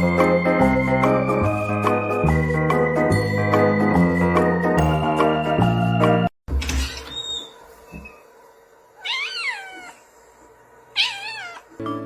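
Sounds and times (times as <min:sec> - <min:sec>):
cat meowing: 0:09.0 - 0:10.0, 0:10.9 - 0:11.7.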